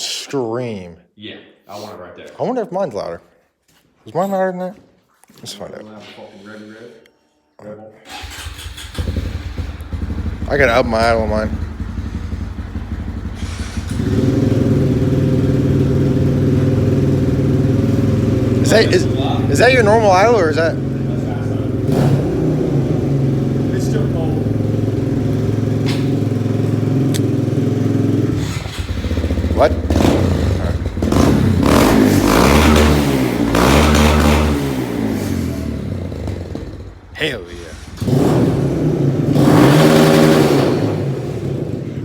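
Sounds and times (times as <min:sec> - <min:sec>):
motorcycle engine idling: 0:08.1 - 0:32.0.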